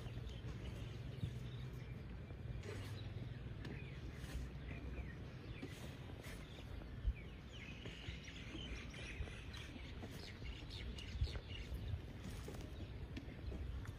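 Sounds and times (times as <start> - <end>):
low outdoor rumble: 0.0 - 13.9
small birds chirping: 0.0 - 13.9.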